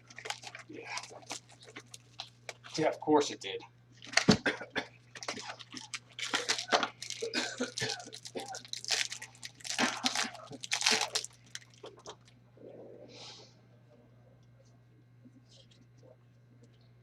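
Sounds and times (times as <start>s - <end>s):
wrapper tearing and crinkling: 0.0s - 2.8s, 5.2s - 12.3s.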